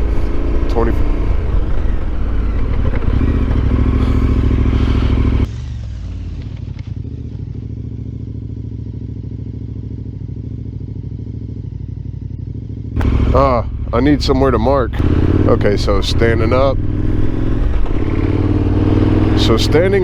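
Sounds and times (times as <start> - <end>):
gravel noise: 0.0 - 8.0, 13.0 - 20.0
motorcycle engine idling: 0.0 - 20.0
motorcycle engine running: 0.0 - 20.0
wind noise: 15.0 - 19.4.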